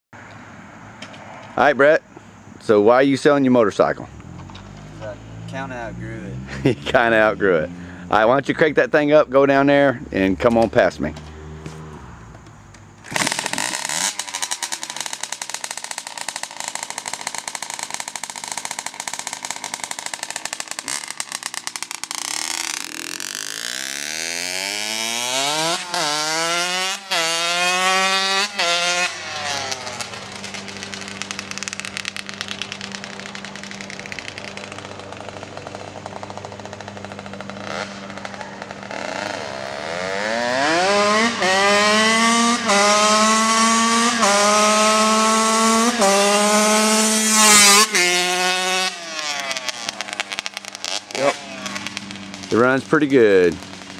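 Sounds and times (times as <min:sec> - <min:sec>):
dirt bike engine revving: 0:04.2 - 0:08.4, 0:13.0 - 0:53.9.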